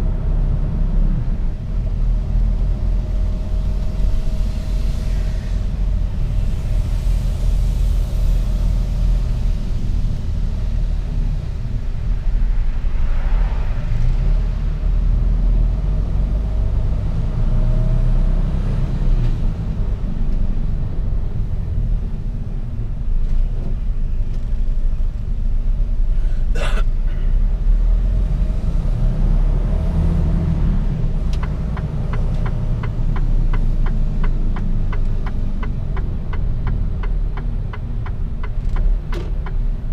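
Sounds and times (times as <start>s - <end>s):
truck diesel engine rumble: 0.0s - 39.9s.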